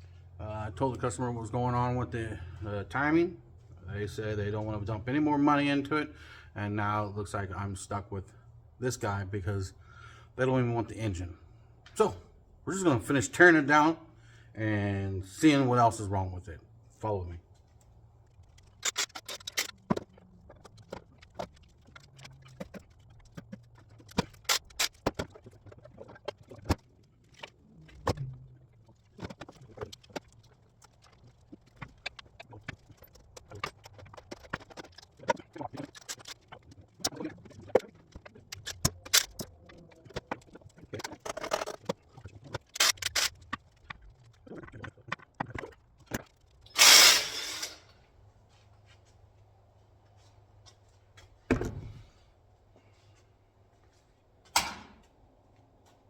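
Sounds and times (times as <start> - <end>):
loud hiss: 46.8 - 47.8.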